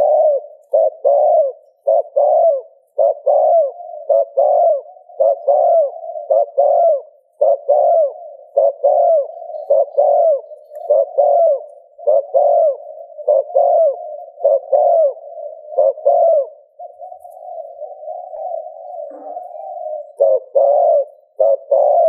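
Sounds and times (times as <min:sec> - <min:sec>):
dove cooing: 0:00.0 - 0:22.0.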